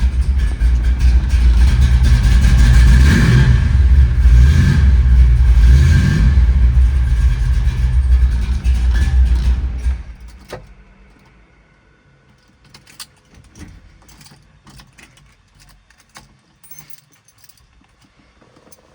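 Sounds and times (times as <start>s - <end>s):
car engine running: 0.0s - 15.2s
keys jingling: 9.3s - 11.3s, 12.3s - 18.9s.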